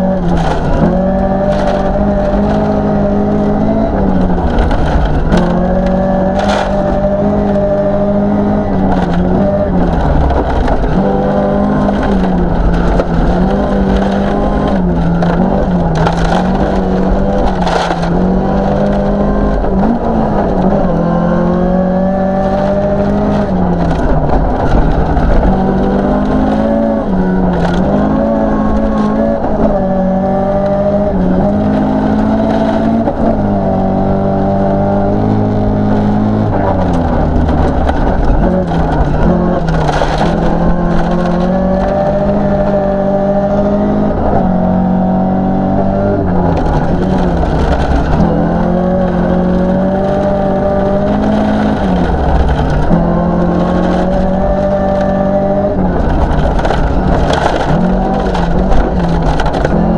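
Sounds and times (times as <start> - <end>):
gravel knocks and crackles: 0.0 - 20.9, 34.7 - 43.9, 46.0 - 59.9
car engine revving: 0.0 - 59.9.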